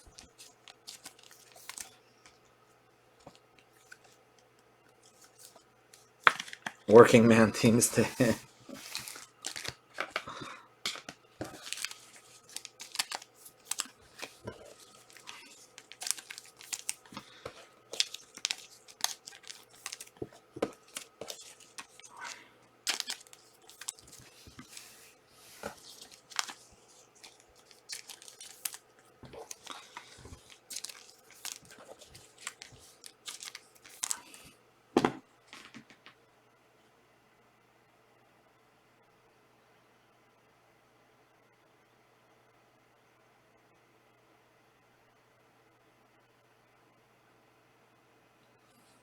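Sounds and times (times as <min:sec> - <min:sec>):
cards clicking and rustling: 0:00.0 - 0:02.4, 0:05.0 - 0:36.1
card pack wrappers tearing: 0:00.1 - 0:02.0, 0:07.7 - 0:34.4.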